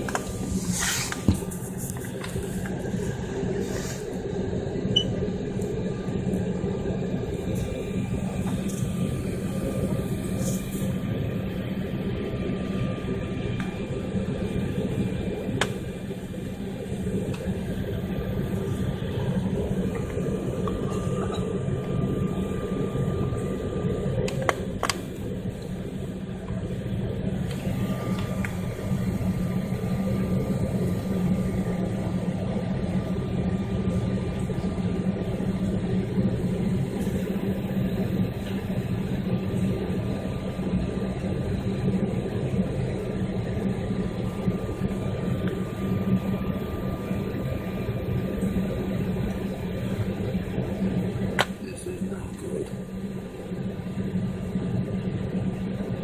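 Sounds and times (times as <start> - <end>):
airliner engines droning: 0.0 - 56.0
faint whine: 0.0 - 56.0.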